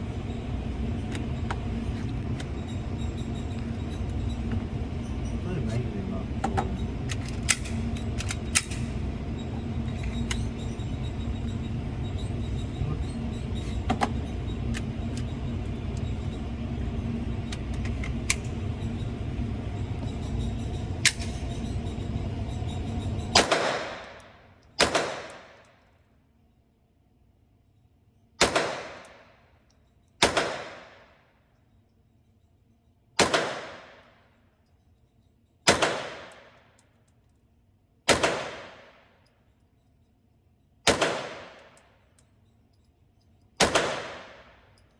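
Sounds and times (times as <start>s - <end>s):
steady rumble: 0.0s - 24.3s
gunshots: 23.4s - 24.1s, 24.8s - 25.6s, 28.4s - 29.2s, 30.2s - 31.0s, 33.2s - 34.0s, 35.7s - 36.6s, 38.1s - 39.0s, 40.9s - 41.8s, 43.6s - 44.5s.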